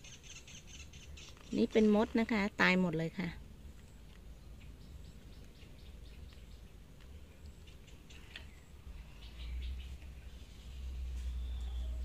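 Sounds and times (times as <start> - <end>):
faint small bird chirps: 3.8 - 12.0.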